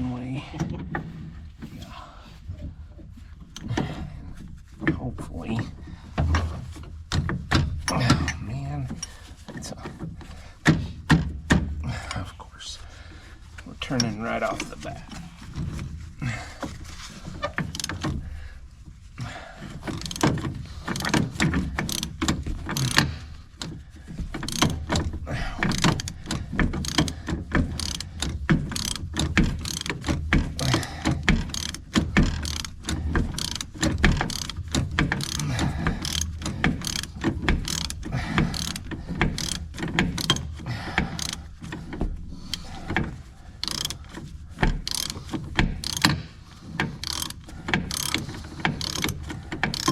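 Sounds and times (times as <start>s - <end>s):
ratchet wrench clicking: 17.4s - 18.2s, 19.9s - 23.8s, 24.4s - 41.7s, 43.6s - 49.9s.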